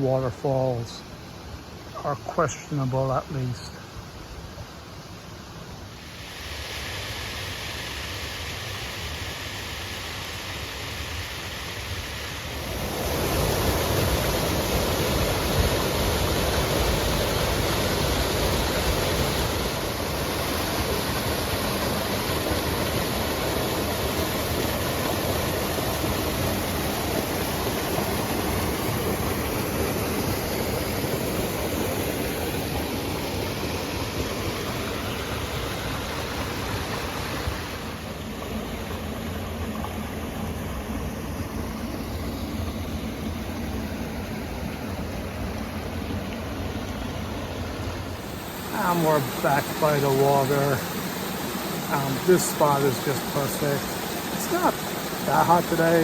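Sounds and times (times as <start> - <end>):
waterfall rushing: 12.5 - 56.0.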